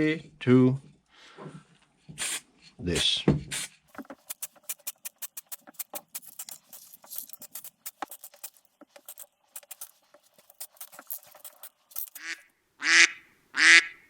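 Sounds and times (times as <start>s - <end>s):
small hard parts clicking: 3.9s - 12.3s.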